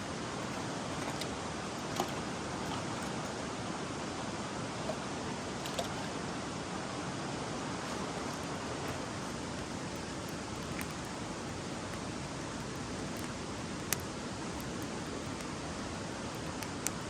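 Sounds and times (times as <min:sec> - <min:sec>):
faint clicks: 0:08.2 - 0:17.0.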